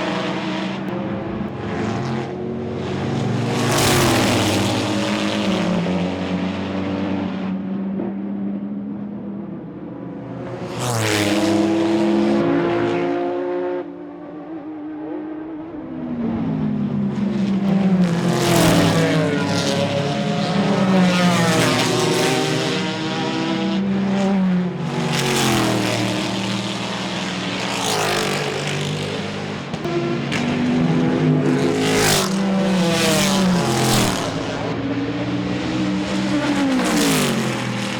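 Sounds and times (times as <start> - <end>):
racing engines revving: 0.0 - 37.9.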